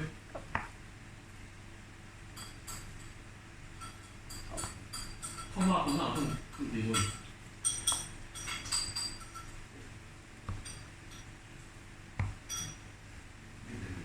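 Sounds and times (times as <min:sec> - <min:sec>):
spoon clinking against bowl: 0:02.4 - 0:03.2, 0:03.8 - 0:09.6, 0:10.5 - 0:11.3, 0:12.4 - 0:12.9.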